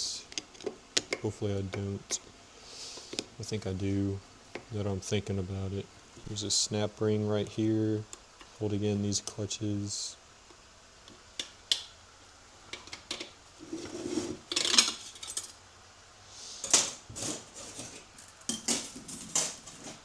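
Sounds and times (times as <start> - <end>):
metal clutch parts clinking: 14.5 - 15.6, 16.8 - 20.0.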